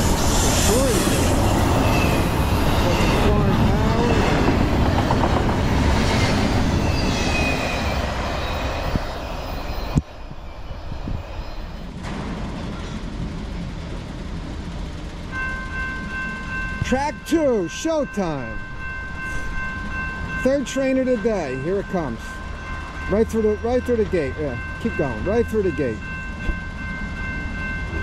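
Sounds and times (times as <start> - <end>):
high wheel squeals: 0.0 - 12.0
freight train wheels rumbling: 0.0 - 28.0.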